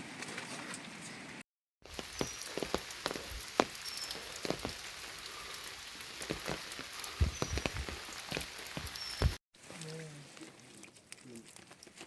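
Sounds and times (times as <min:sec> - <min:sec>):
steady rain: 0:01.8 - 0:09.4
raindrops ticking on surfaces: 0:01.8 - 0:12.0.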